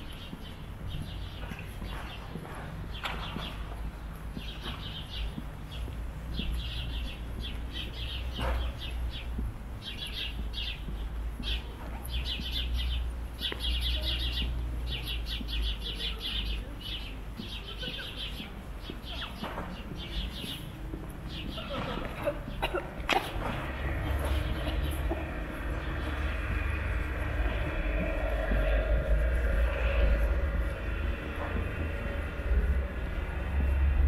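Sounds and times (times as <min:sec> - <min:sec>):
small birds chirping: 0:00.0 - 0:33.8
low steady rumble: 0:23.6 - 0:34.0.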